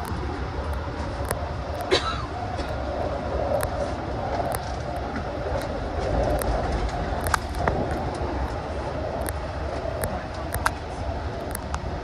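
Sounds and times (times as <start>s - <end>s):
train wheels rumbling on rail: 0.0s - 12.0s
sharp clicks and rattles: 3.5s - 12.0s.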